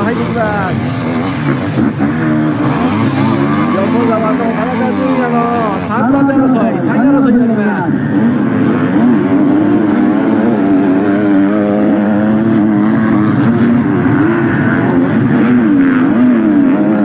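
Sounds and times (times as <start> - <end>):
motocross bikes revving: 0.0 - 17.0.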